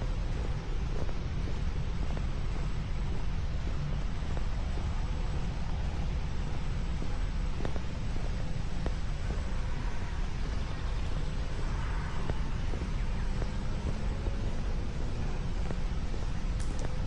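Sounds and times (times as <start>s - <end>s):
low outdoor rumble: 0.0s - 17.0s
faint light ticks: 15.6s - 17.0s.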